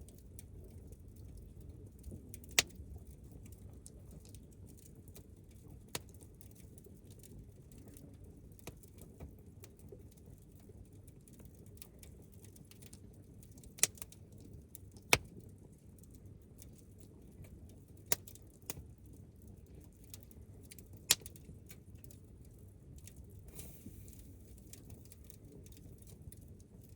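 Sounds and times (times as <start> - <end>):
campfire crackling: 17.4 - 26.9
fire popping: 20.6 - 21.6.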